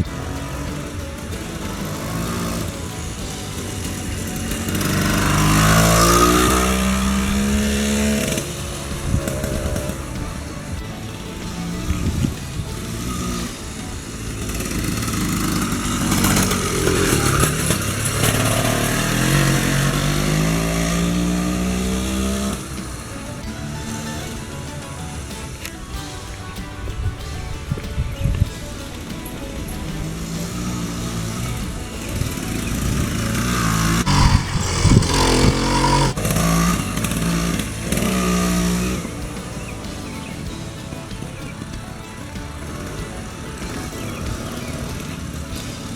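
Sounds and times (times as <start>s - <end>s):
two-stroke engine accelerating: 0.0s - 45.9s.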